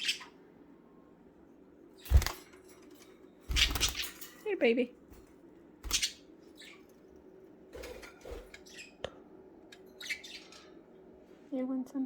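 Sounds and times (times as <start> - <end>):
budgerigars chirping: 0.0 - 0.4, 5.8 - 6.9, 9.9 - 10.8
knocks and rustles in cage: 2.1 - 4.6.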